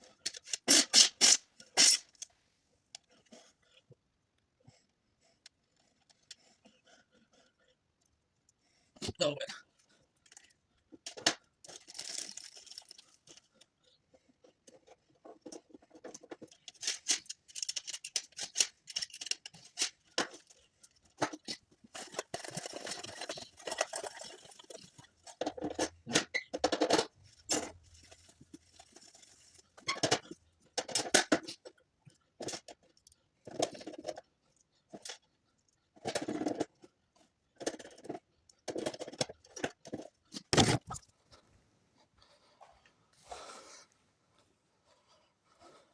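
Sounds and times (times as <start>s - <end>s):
rustling and scraping: 10.2s - 31.0s.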